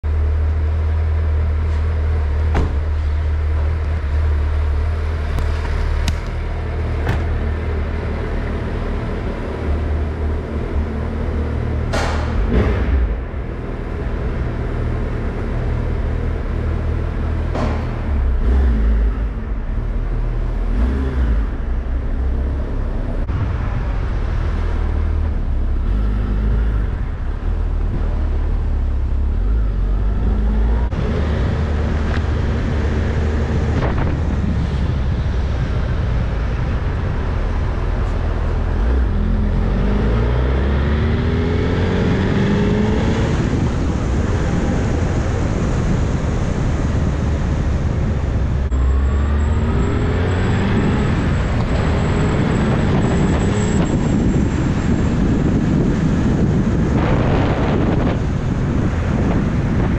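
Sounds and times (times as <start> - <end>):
sharp clicks and knocks: 5.4 - 6.4.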